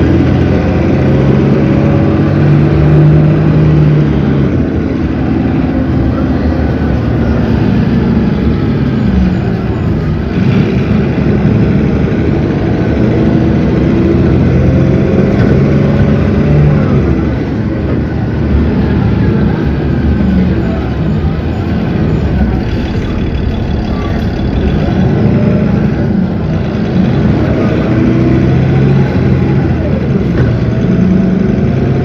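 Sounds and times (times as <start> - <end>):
bus diesel engine running: 0.0 - 32.0.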